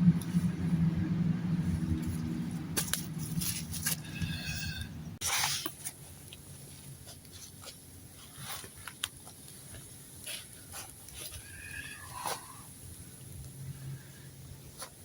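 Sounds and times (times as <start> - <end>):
campfire crackling: 5.2 - 15.0
faint steady hiss: 5.2 - 15.0.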